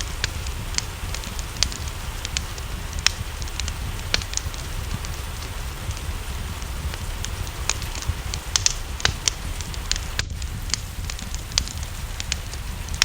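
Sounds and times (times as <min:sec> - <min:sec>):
steady rain: 0:00.0 - 0:13.0
wood fire crackling: 0:00.0 - 0:13.0.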